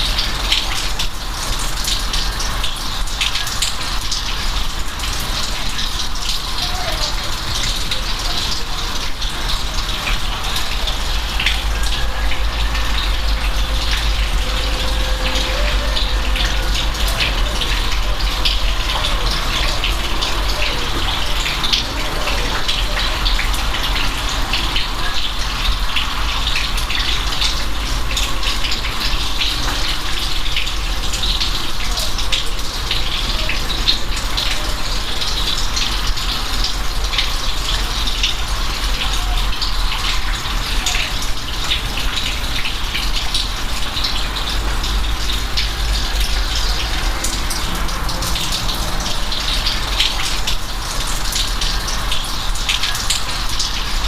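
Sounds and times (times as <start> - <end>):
rain falling: 0.0 - 54.0
low rumble: 10.2 - 20.2.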